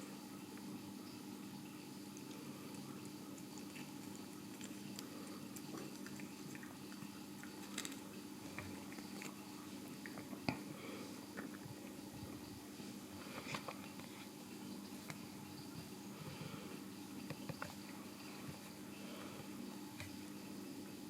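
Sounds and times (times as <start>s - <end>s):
cat chewing food: 2.0s - 12.6s.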